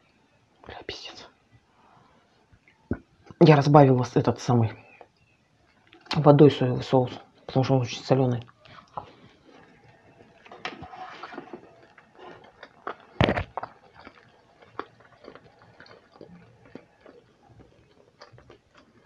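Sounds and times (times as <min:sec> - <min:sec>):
wet chewing: 0:05.0 - 0:06.2, 0:08.4 - 0:19.0.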